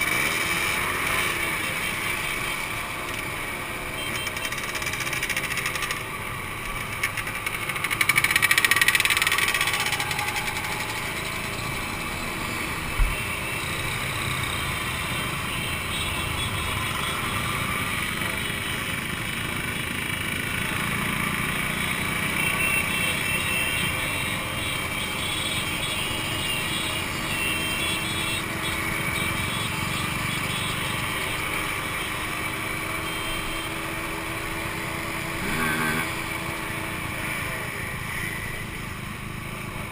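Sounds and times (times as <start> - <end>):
two-stroke motorcycle engines: 0.0 - 39.9.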